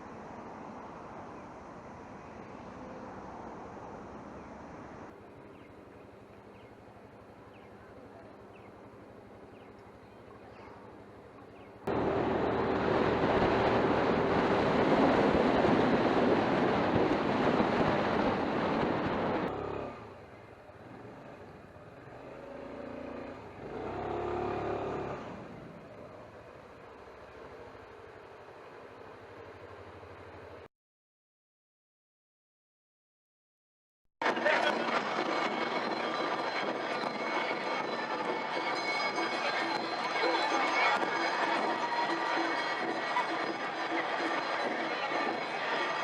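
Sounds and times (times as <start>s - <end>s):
road noise: 0.0s - 30.7s, 34.2s - 46.0s
scooter engine: 5.3s - 30.6s.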